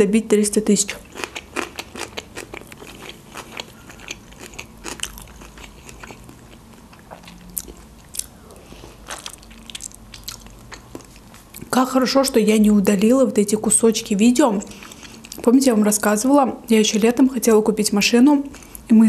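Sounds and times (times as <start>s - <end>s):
chewing dumpling with clicks and smacks: 0.9s - 11.7s, 14.7s - 15.5s.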